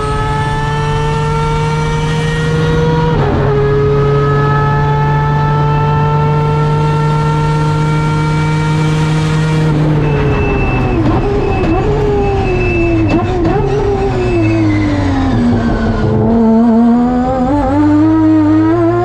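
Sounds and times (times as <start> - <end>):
rotary engine revving: 0.0 - 19.0
engine sharp cracks: 9.7 - 16.5.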